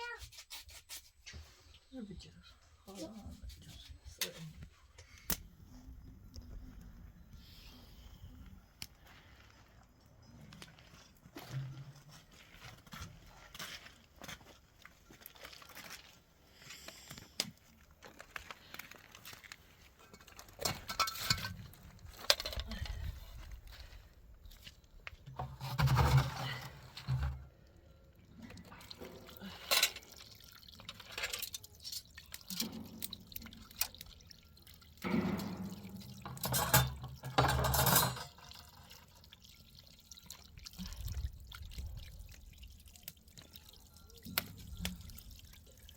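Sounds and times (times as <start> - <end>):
water poured and splashed: 15.2 - 45.9.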